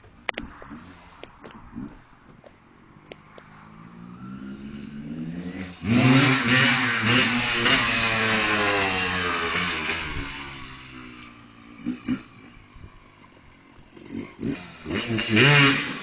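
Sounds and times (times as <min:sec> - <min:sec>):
dirt bike engine revving: 0:03.5 - 0:16.0.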